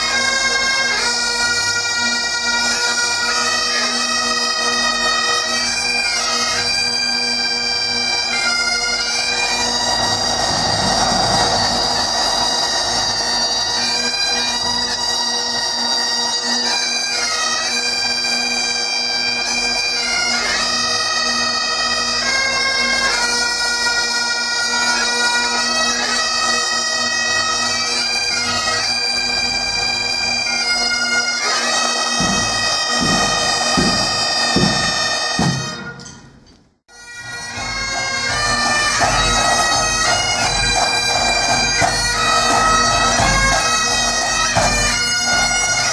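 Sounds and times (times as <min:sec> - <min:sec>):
bagpipes playing a tune: 0:00.0 - 0:35.8, 0:36.9 - 0:45.9
low drum thumps: 0:32.2 - 0:35.6.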